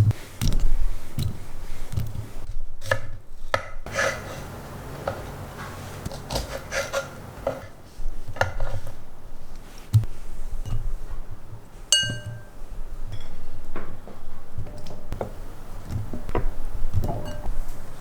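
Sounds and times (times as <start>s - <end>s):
dishes clinking and knocking: 10.6s - 17.8s
ringing glass clink: 11.9s - 13.4s, 17.1s - 17.6s.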